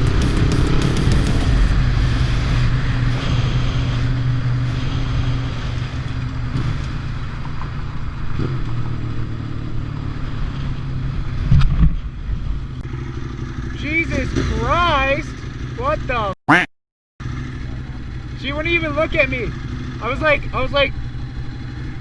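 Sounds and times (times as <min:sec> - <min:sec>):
motorcycle engine running: 0:00.0 - 0:07.2, 0:12.6 - 0:15.8, 0:17.2 - 0:18.5, 0:19.4 - 0:20.0, 0:20.9 - 0:22.0.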